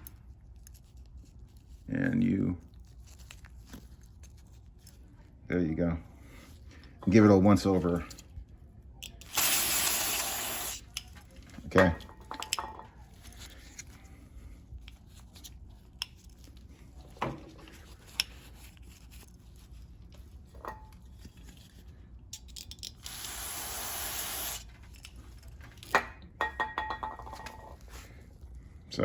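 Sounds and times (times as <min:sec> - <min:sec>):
aerosol spray hiss: 0:09.3 - 0:10.8, 0:23.1 - 0:24.6
clicks of parts being handled: 0:22.3 - 0:23.1.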